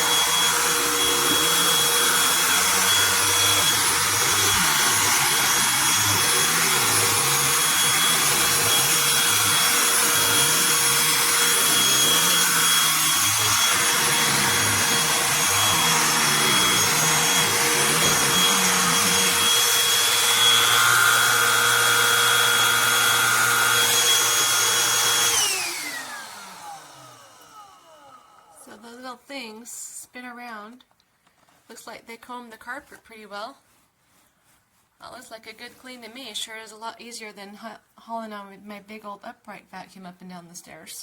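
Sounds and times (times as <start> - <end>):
handheld vacuum whining: 0.0 - 28.8.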